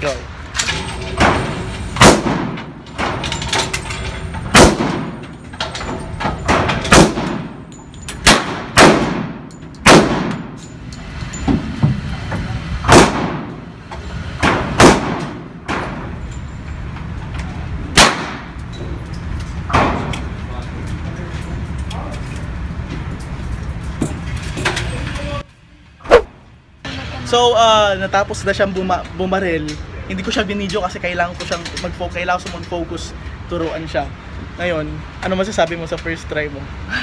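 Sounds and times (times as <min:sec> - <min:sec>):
gunshots with ringing echo: 0:04.5 - 0:05.2, 0:06.9 - 0:07.6, 0:08.2 - 0:10.6.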